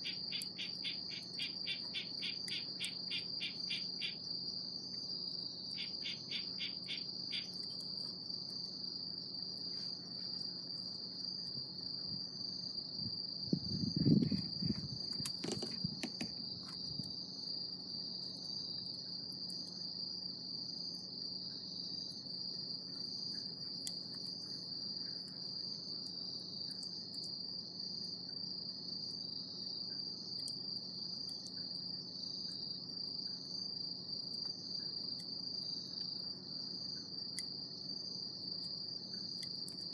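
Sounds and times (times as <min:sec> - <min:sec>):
insects trilling: 0:00.0 - 0:39.9
low thump or rustle: 0:14.1 - 0:16.4.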